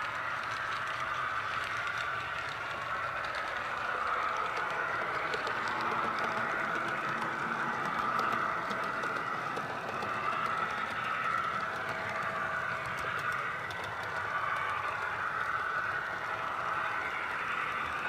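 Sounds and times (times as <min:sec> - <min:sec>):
faint clicks: 0:00.0 - 0:18.0.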